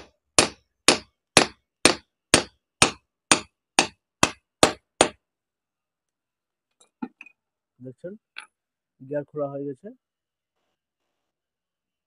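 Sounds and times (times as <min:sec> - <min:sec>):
hammer striking metal: 0:00.0 - 0:05.2.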